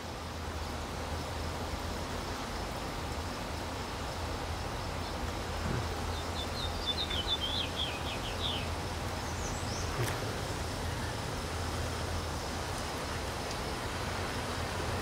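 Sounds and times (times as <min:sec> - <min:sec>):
small bird chirping: 0:05.7 - 0:10.3.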